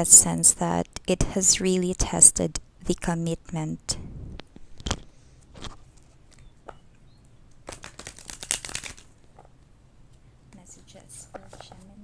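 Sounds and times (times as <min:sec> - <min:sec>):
cards flicking: 0:07.6 - 0:09.1
cards tapping: 0:07.7 - 0:09.5.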